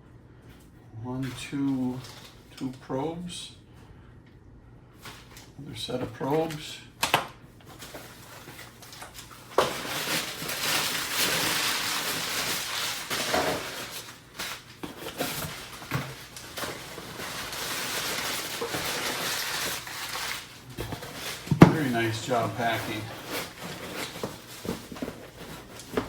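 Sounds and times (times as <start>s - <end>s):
packing material rustling: 1.7s - 2.5s, 7.7s - 26.0s.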